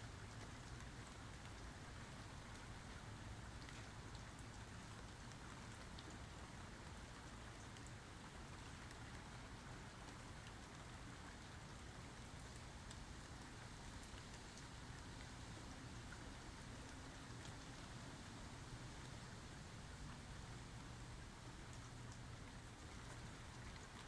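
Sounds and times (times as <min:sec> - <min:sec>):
faint rainfall hiss: 0:00.0 - 0:24.0.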